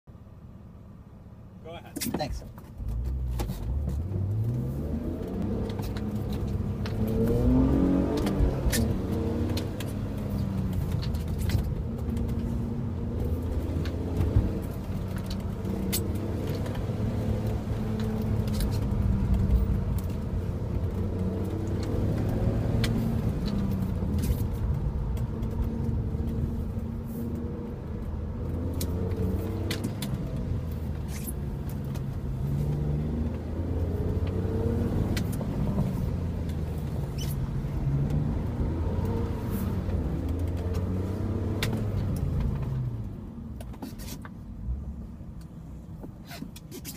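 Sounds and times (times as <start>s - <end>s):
car engine revving: 2.8s - 43.3s.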